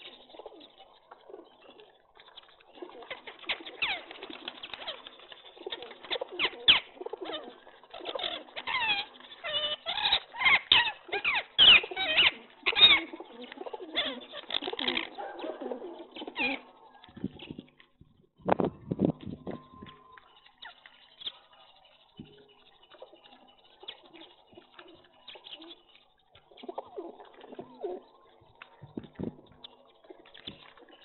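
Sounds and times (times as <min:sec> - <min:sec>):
birds chirping: 0:00.0 - 0:31.0
wings flapping: 0:00.2 - 0:17.8.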